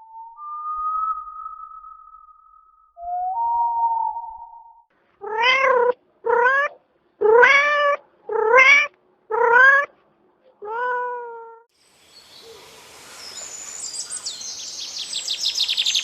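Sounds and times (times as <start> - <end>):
cat meowing: 5.2 - 9.9, 10.6 - 11.7.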